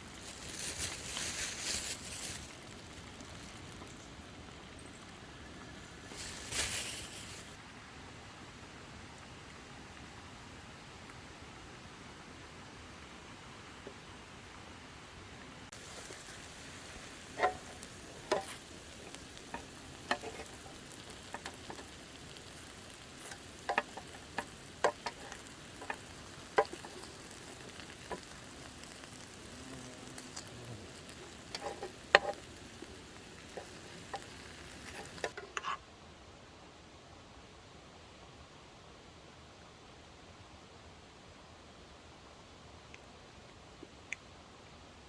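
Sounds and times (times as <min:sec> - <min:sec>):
campfire popping: 0:00.0 - 0:07.6, 0:15.6 - 0:35.7
campfire hissing: 0:00.0 - 0:35.7.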